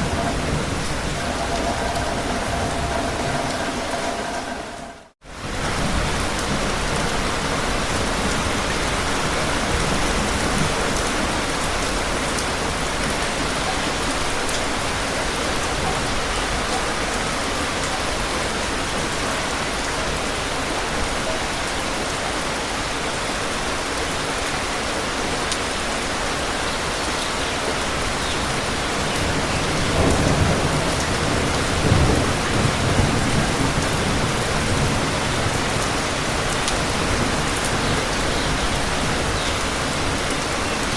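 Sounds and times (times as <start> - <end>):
thunder rumbling: 0.0 - 13.3
steady rain falling: 0.0 - 40.9.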